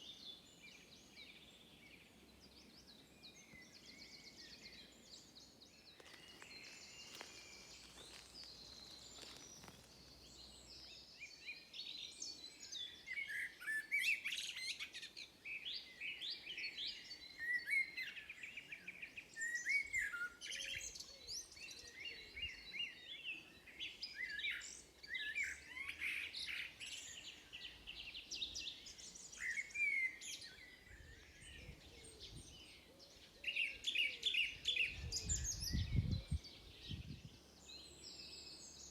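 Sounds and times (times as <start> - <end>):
songbirds singing and chirping: 0.0 - 38.9.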